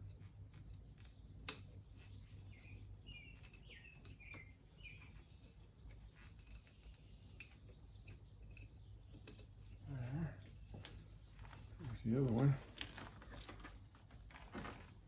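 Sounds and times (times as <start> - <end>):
faint bird chirps: 0.9 - 12.2.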